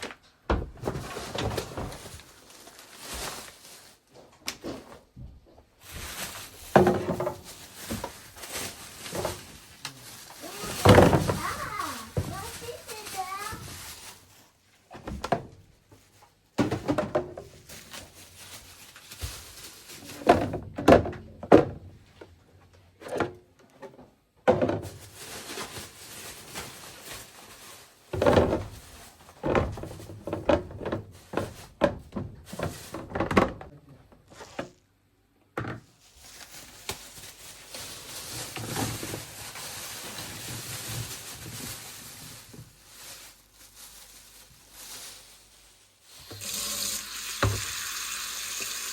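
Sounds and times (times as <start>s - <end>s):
objects thunking and knocking: 0.0s - 2.3s, 4.2s - 9.7s, 10.4s - 13.9s, 14.9s - 16.0s, 16.6s - 18.3s, 19.2s - 26.9s, 28.1s - 34.7s, 35.5s - 35.9s
water running from a tap: 46.3s - 48.9s.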